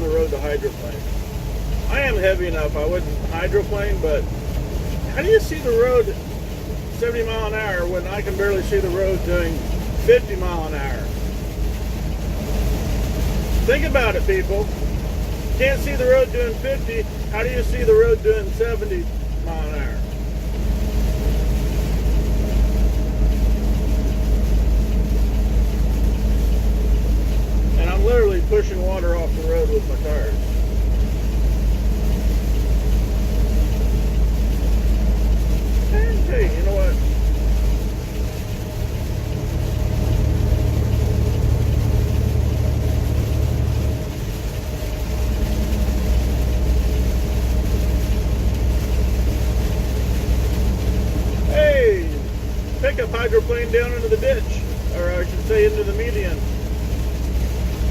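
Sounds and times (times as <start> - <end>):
truck engine and road rumble: 0.0 - 57.9
tyres hissing on wet road: 0.0 - 57.9.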